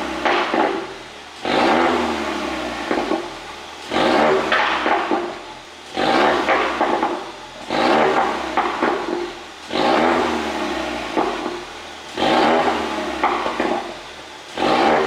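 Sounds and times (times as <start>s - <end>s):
car engine revving: 0.0s - 15.0s
exhaust pops: 0.0s - 15.0s.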